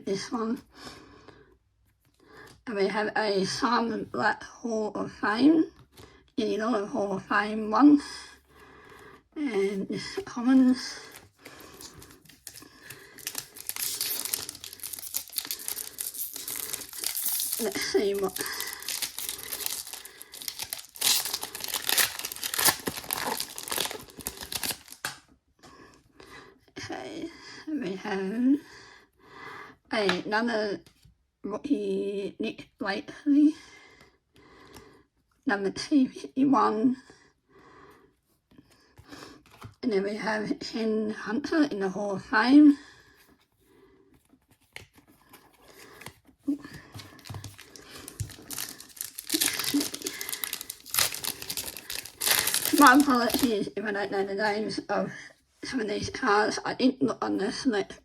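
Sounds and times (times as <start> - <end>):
plastic wrapper crinkling: 10.9 - 25.2, 45.7 - 53.7
trading cards being shuffled: 11.0 - 25.1, 46.8 - 53.5
plastic wrapper ripping: 11.0 - 25.2, 46.9 - 53.6.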